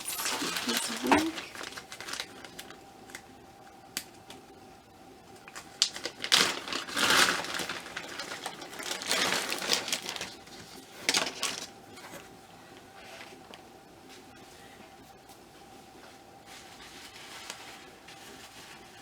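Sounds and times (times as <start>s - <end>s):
packaging rustling: 0.0s - 2.8s, 5.5s - 11.7s.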